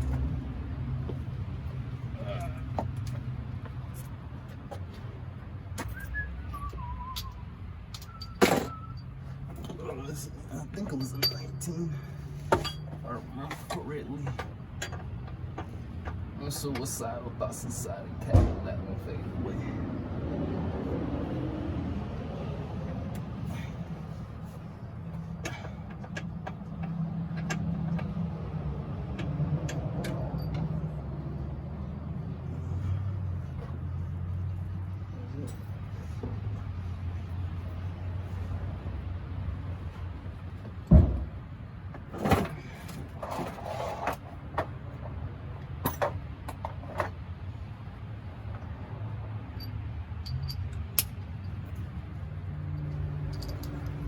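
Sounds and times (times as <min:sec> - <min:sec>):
metal hand tools clinking: 0:10.9 - 0:12.0, 0:49.5 - 0:51.6, 0:52.8 - 0:54.0
heavy thump: 0:40.9 - 0:41.4
metal rattle: 0:53.2 - 0:54.0.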